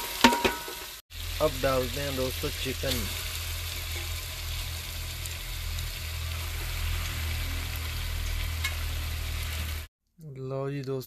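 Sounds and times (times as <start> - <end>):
chicken sizzling in hot oil: 0.0 - 9.9
low hum: 2.6 - 9.9.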